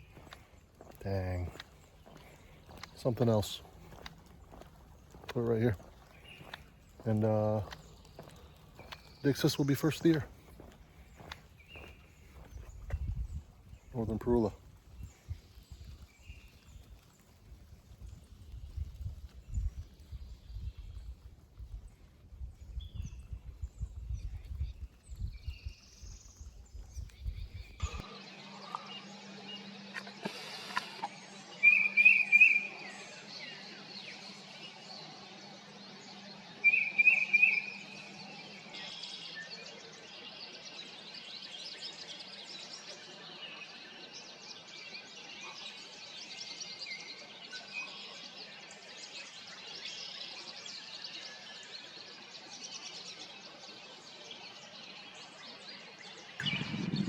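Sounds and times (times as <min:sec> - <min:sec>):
low rumbling on microphone: 0:56.4 - 0:57.0.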